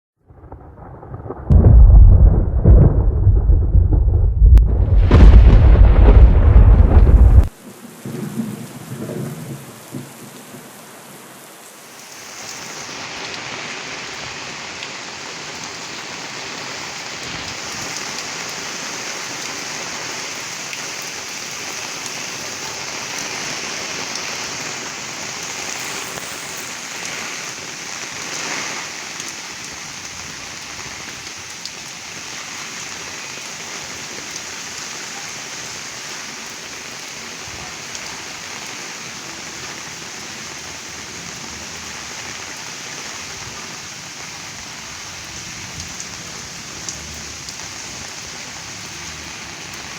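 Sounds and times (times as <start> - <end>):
thunder rumble: 0.2 - 11.6
heavy rain pouring: 0.3 - 49.9.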